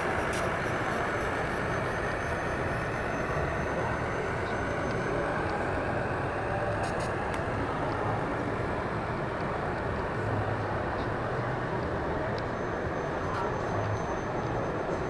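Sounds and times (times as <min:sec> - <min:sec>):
indistinct crowd noise: 0:00.0 - 0:15.0.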